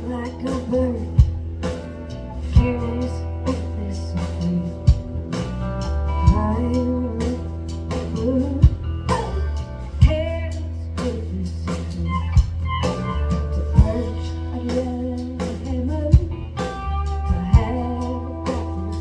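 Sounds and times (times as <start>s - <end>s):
woman singing: 0.0s - 1.8s, 2.5s - 5.4s, 6.1s - 12.5s, 13.6s - 19.0s
live band playing: 0.0s - 19.0s.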